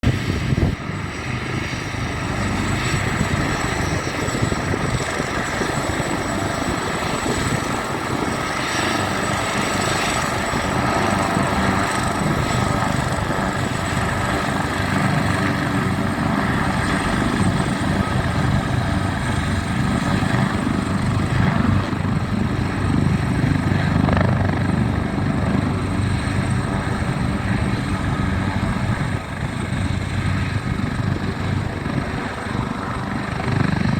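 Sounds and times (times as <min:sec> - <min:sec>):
helicopter rotor and turbine: 0:00.0 - 0:33.9
rushing wind: 0:00.0 - 0:33.9.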